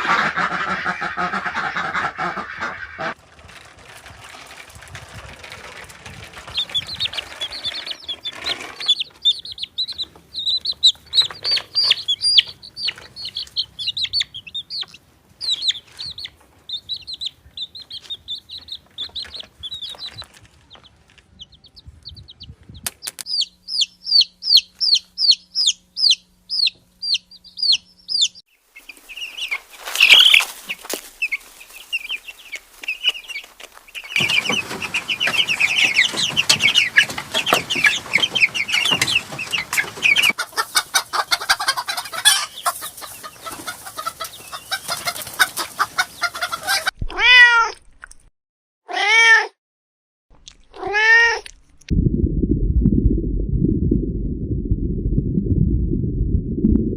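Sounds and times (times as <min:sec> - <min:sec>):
chicks peeping: 0:00.0 - 0:03.2, 0:06.1 - 0:47.0
low rumbling noise: 0:51.9 - 0:56.9.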